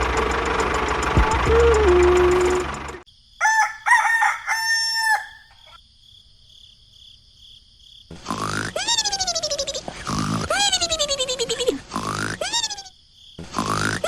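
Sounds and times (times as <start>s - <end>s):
rooster crowing: 3.4s - 5.8s.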